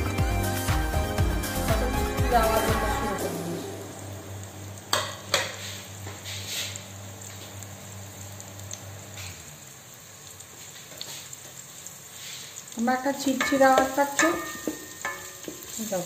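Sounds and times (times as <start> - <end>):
food sizzling in ghee: 0.0 - 16.0
sharp knocks on metal pot: 13.4 - 15.7.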